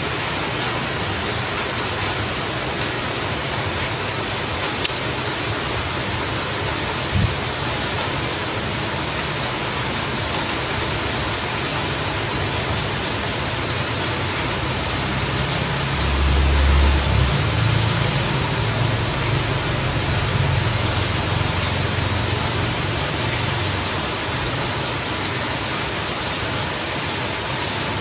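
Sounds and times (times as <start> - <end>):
heavy rain hiss: 0.0 - 28.0.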